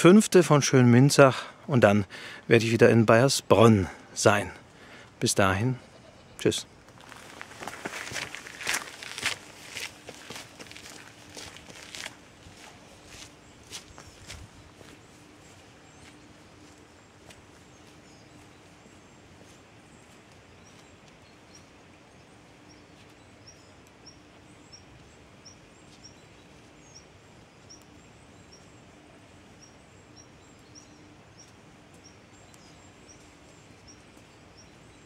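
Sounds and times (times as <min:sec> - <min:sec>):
soft steady hiss: 0:00.0 - 0:35.0.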